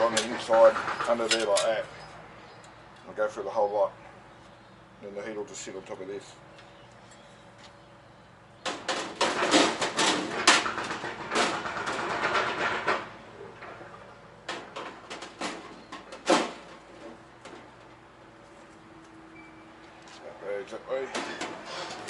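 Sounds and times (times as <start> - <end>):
parts clattering and knocking: 0.0 - 1.8, 8.6 - 18.0, 21.1 - 22.0.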